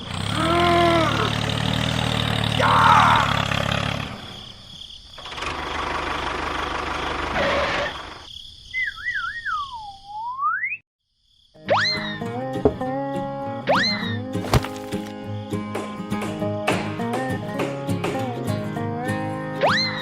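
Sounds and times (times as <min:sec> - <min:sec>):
engine running: 0:00.0 - 0:04.5, 0:05.2 - 0:08.1
wavering whistle: 0:08.8 - 0:10.8.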